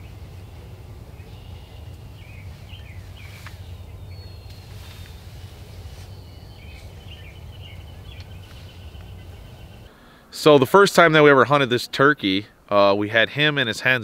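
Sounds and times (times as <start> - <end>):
songbirds chirping and whistling: 0.0 - 10.3
steady low rumble: 0.0 - 10.3.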